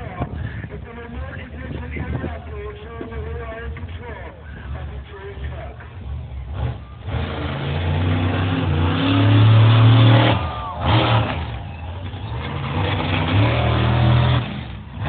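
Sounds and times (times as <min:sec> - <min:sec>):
truck engine revving: 0:04.9 - 0:15.0.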